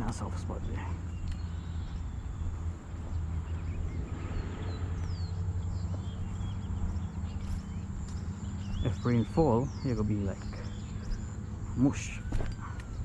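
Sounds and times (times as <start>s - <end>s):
steady low rumble: 0.0s - 13.0s
birds whistling descending calls: 0.6s - 13.0s
footsteps on mud: 5.8s - 9.4s.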